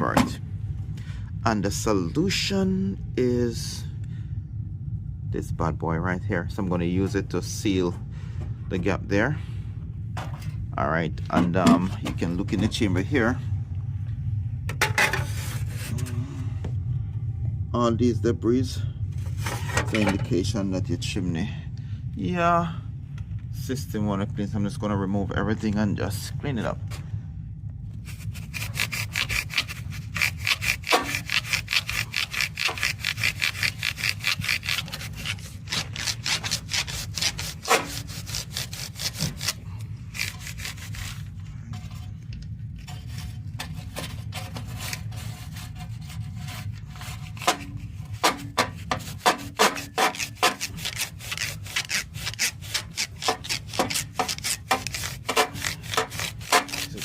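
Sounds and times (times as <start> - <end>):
steady low hum: 0.0 - 57.0
rapid scraping strokes: 15.1 - 16.2, 28.0 - 42.2, 42.8 - 57.0.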